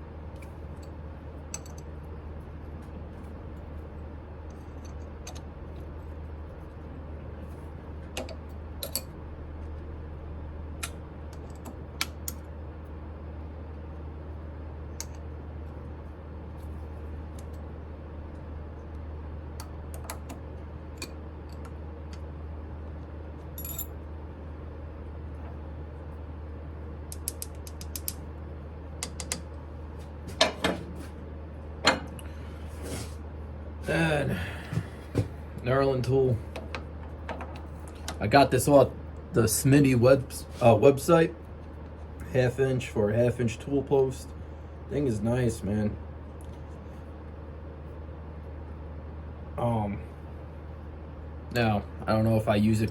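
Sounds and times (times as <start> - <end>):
steady low hum: 0.0 - 52.9
metal tools clicking and tapping: 1.5 - 1.9, 27.1 - 28.2, 29.0 - 29.4.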